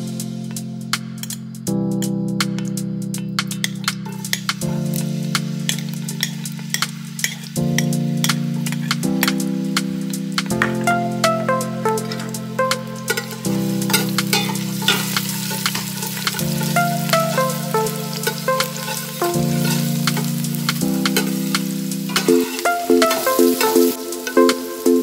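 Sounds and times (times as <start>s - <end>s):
background music with chords: 0.0s - 25.0s
aromatics sizzling in hot oil: 1.2s - 25.0s
metal spoon scraping a pot: 5.7s - 7.6s, 13.1s - 16.4s, 18.8s - 20.3s.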